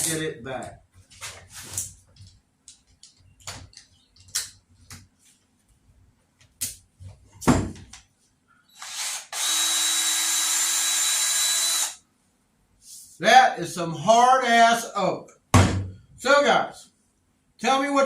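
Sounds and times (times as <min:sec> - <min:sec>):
cordless drill running: 0:08.8 - 0:12.0
loud knock: 0:15.5 - 0:16.0.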